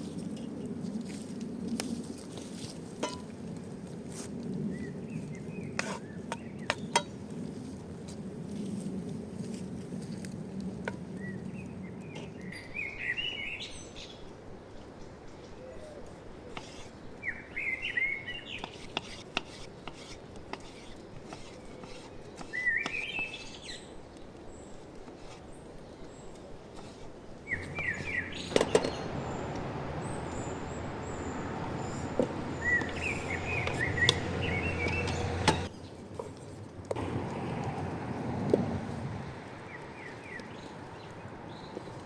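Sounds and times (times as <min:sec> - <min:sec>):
small birds chirping trills: 0:11.2 - 0:35.9
steady rushing noise: 0:27.6 - 0:35.7.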